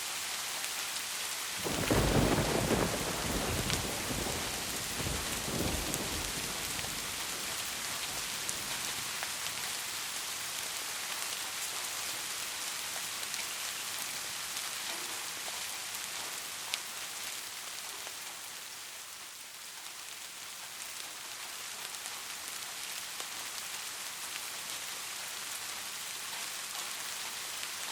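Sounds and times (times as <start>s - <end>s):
rain falling: 0.0s - 27.9s
raindrop ticks: 1.6s - 9.8s.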